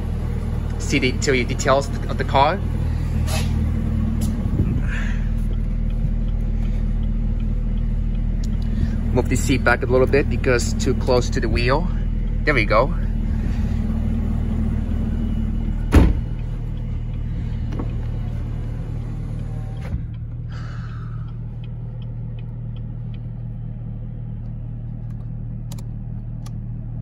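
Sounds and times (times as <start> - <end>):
car engine idling: 0.0 - 27.0
sharp thump: 15.9 - 16.3.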